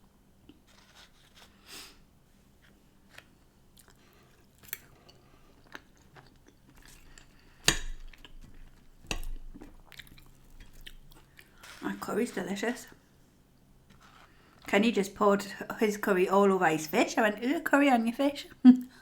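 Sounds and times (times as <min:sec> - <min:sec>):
person chewing food: 0:03.2 - 0:11.8.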